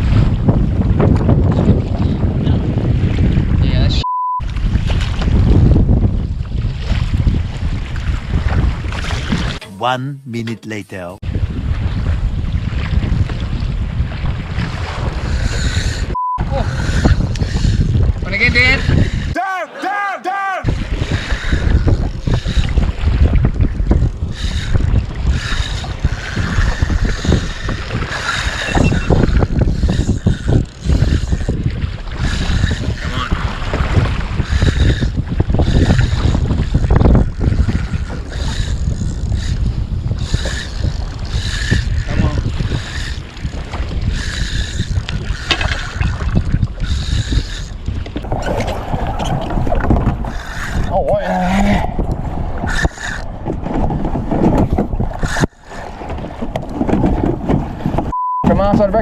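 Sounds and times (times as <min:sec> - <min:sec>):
wind buffeting microphone: 0:00.0 - 0:09.6, 0:11.2 - 0:19.4, 0:20.6 - 0:58.1
water splashing against kayak: 0:31.6 - 0:34.6, 0:47.8 - 0:50.9, 0:52.2 - 0:58.1.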